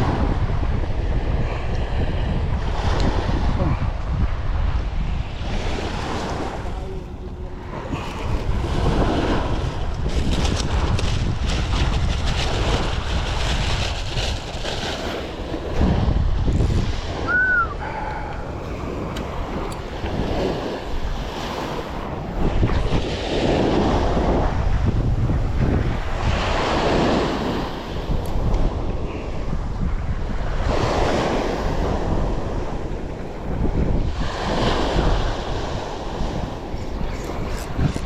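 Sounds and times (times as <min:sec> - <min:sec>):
sea water washing around boat: 0:00.0 - 0:38.0
wind buffeting microphone: 0:00.0 - 0:38.0.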